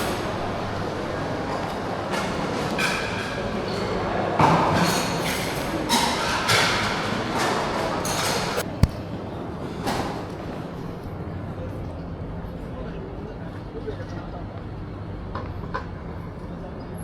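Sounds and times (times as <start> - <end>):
sharp knock: 8.6 - 9.0.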